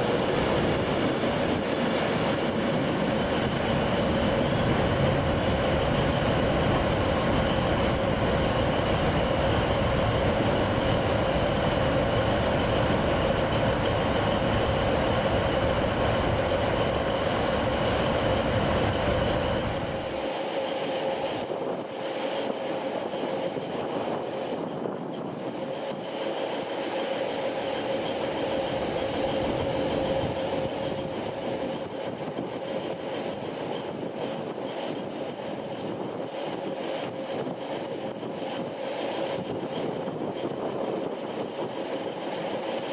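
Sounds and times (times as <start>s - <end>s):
steady whine: 0.0s - 21.6s, 26.9s - 31.8s
train rumbling: 0.0s - 42.9s.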